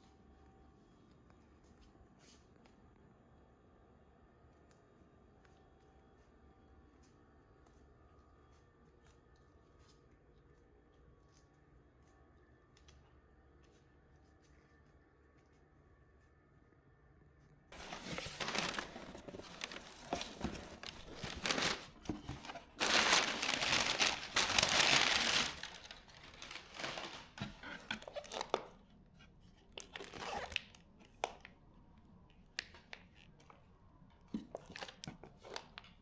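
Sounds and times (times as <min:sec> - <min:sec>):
packaging crinkling and tearing: 0:17.8 - 0:28.8, 0:29.7 - 0:31.6, 0:34.5 - 0:36.0.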